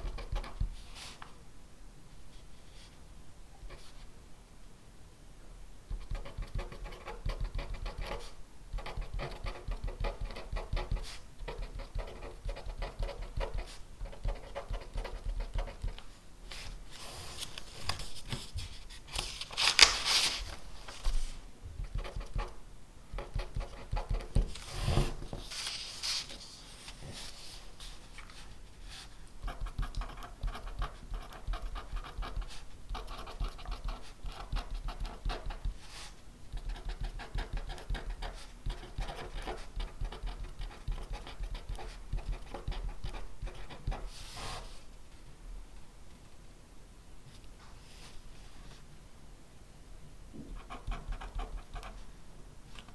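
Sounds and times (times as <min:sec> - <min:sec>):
pen scratching on paper: 0:05.9 - 0:16.0, 0:21.8 - 0:25.2, 0:29.4 - 0:44.7, 0:50.4 - 0:52.0.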